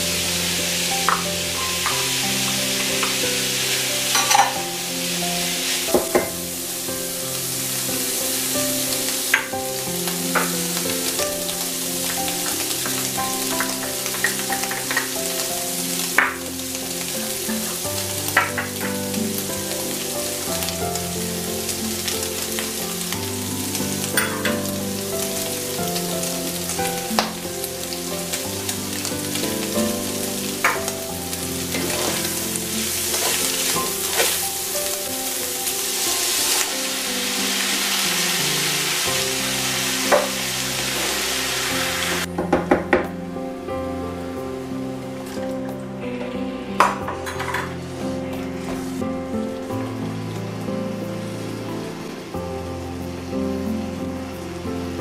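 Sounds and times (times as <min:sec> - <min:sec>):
meat sizzling in frying pan: 0:00.0 - 0:42.4, 0:43.7 - 0:55.0
soft background music: 0:00.0 - 0:55.0
wooden spoon scraping pan: 0:31.8 - 0:32.4.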